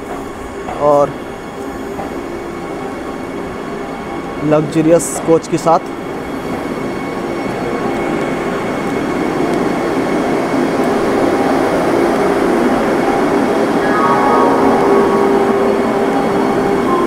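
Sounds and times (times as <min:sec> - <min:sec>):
train electric hum and rumble: 0:00.0 - 0:17.0
steady tones: 0:13.7 - 0:17.0.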